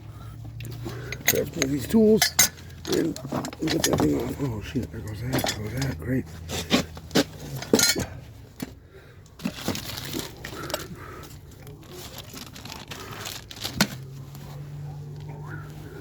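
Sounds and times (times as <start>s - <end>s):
tools knocking and clanking: 1.0s - 8.8s
rustling: 9.4s - 16.0s.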